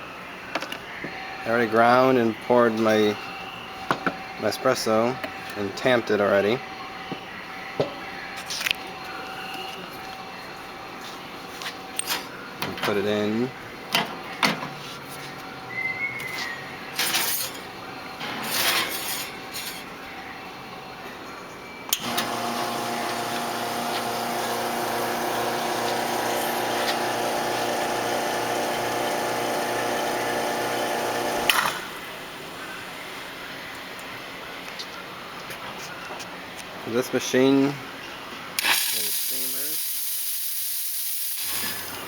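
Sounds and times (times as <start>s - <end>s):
espresso machine pump humming: 22.0s - 32.0s.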